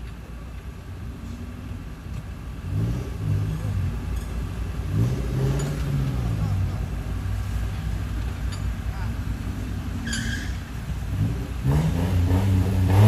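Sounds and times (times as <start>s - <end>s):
off-road vehicle engine revving: 2.6s - 13.0s.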